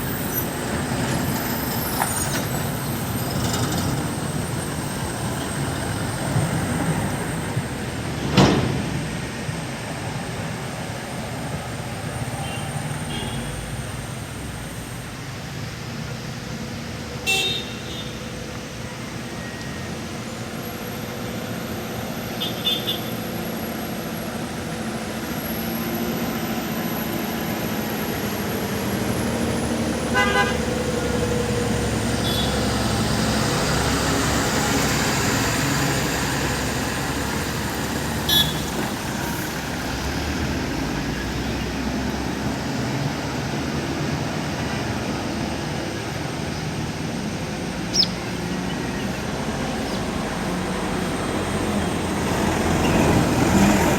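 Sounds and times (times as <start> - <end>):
diesel engines rumbling: 0.0 - 53.9
short horn toots: 38.3 - 38.8.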